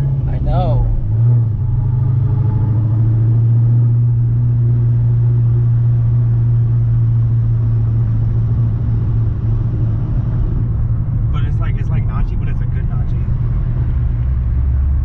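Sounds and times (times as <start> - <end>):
car engine low drone: 0.0 - 15.0.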